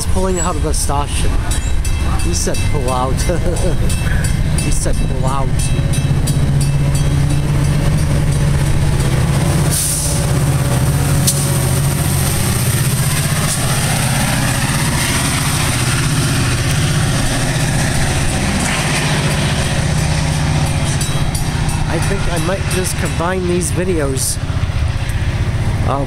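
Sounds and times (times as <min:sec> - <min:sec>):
diesel locomotive droning: 0:00.0 - 0:26.0.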